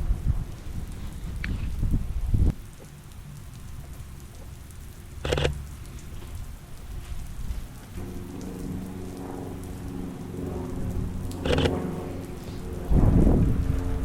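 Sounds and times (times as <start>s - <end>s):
rain falling: 0.0s - 14.0s
low hum of held tones: 2.6s - 14.0s.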